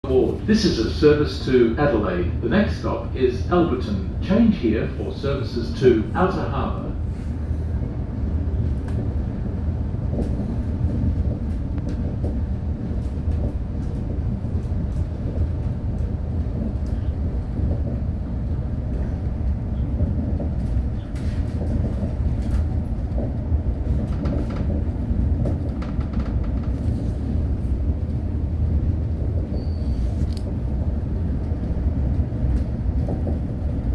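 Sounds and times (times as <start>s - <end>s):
train low rumble: 0.0s - 33.9s
wheels clicking on track: 20.0s - 27.5s.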